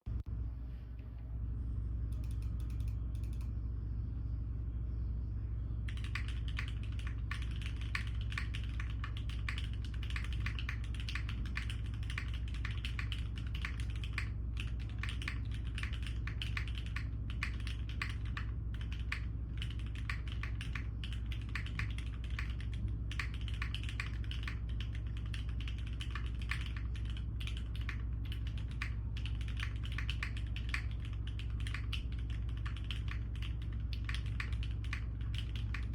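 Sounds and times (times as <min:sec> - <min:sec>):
steady low hum: 0:00.0 - 0:35.9
typing on mechanical keyboard: 0:05.9 - 0:35.9.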